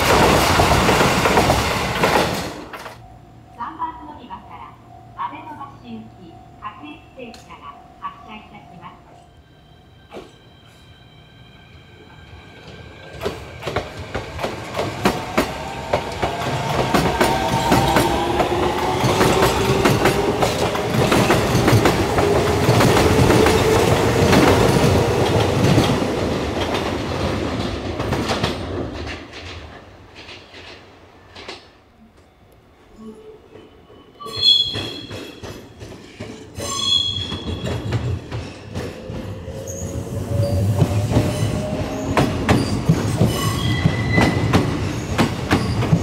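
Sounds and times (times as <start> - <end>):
train wheels clattering over rail joints: 0.0 - 3.0, 13.2 - 31.8, 34.6 - 39.4.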